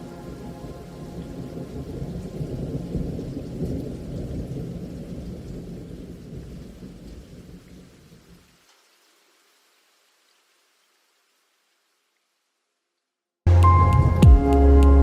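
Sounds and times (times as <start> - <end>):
low rumbling thunder: 0.0 - 8.0
heavy rain: 0.0 - 12.4.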